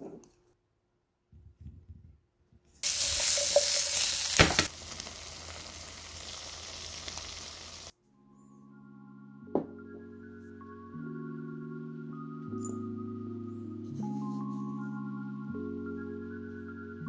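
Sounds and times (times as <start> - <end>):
food sizzling in frying pan: 2.8 - 7.9
music: 7.9 - 17.0.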